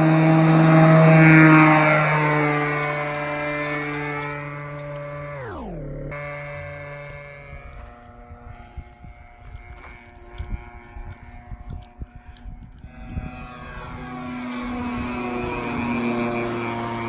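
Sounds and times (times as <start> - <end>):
model plane engine: 0.0 - 17.0
wind on microphone: 5.4 - 17.0.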